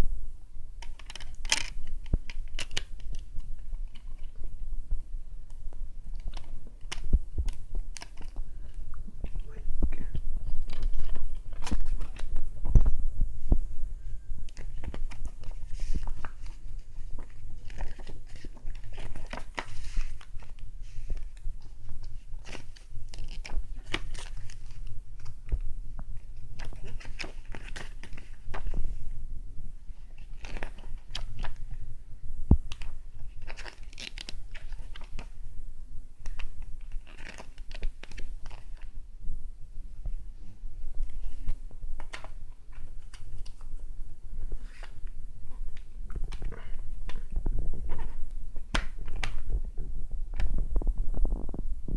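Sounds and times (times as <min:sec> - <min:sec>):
steady hum: 0:00.0 - 0:23.9
plastic packaging crinkling: 0:00.8 - 0:04.4, 0:14.5 - 0:25.5, 0:32.7 - 0:35.4, 0:36.3 - 0:38.9
plastic rustling: 0:00.8 - 0:29.1, 0:32.7 - 0:35.4, 0:36.2 - 0:39.0.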